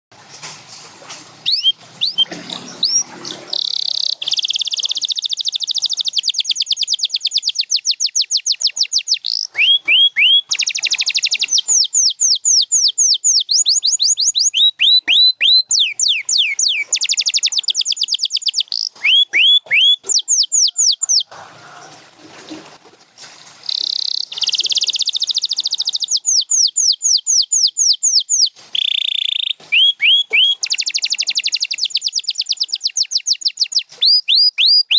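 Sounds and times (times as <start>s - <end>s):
canary singing trills: 1.4s - 21.4s, 23.7s - 34.9s.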